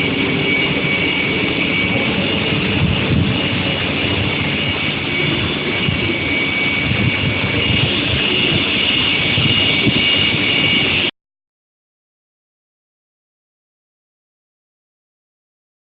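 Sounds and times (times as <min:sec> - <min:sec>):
high-pitched machine whine: 0:00.0 - 0:11.1
industrial rumbling: 0:00.0 - 0:11.1.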